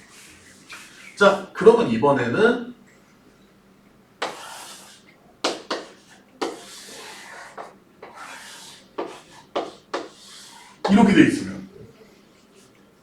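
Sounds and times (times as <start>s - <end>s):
chalk writing on a board: 0.0s - 1.5s, 4.2s - 11.0s.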